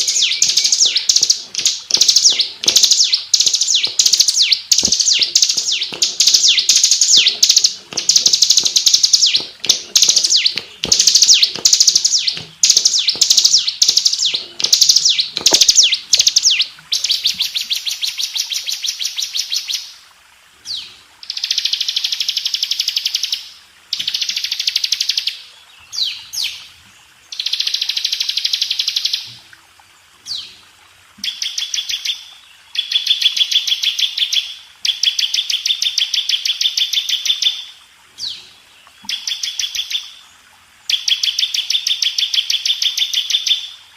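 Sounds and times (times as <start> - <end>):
bird singing buzzing trills: 0.0 - 17.7.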